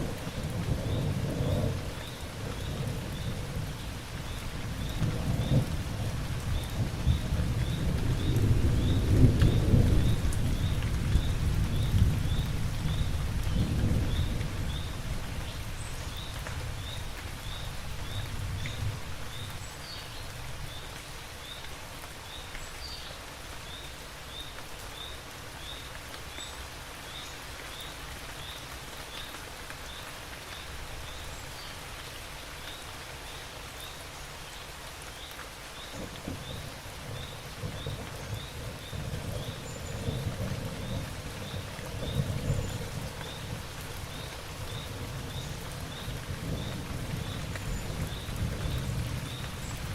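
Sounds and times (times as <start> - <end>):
heavy rain: 0.0 - 49.9
thunder rumble: 4.7 - 15.0, 36.0 - 49.9.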